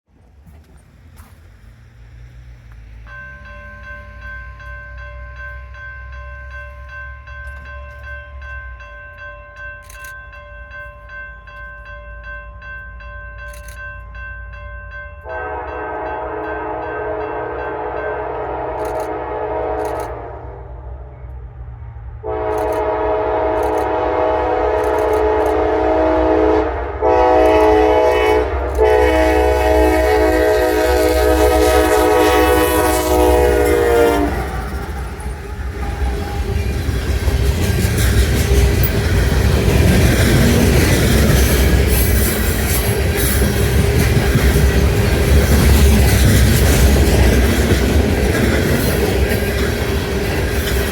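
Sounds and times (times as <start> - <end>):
diesel locomotive rumbling: 0.0 - 50.9
train air horn chord: 15.2 - 20.8, 22.2 - 34.7.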